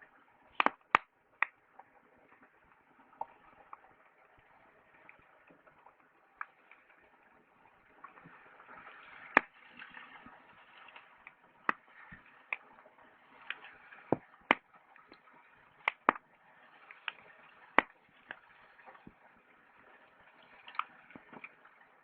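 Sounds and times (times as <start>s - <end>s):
campfire crackling and popping: 0.6s - 1.6s, 9.3s - 9.6s, 11.0s - 12.7s, 13.5s - 19.2s.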